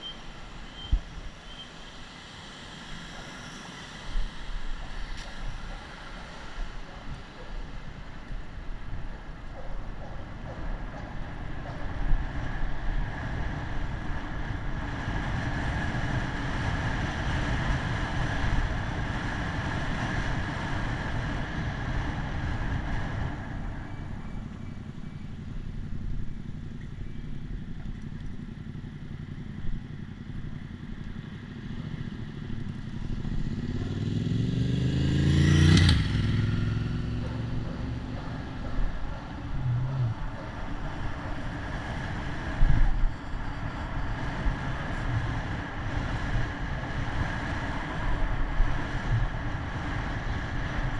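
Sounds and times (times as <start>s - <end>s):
wind and road noise: 0.0s - 50.9s
motor vehicle passing close: 31.1s - 43.1s.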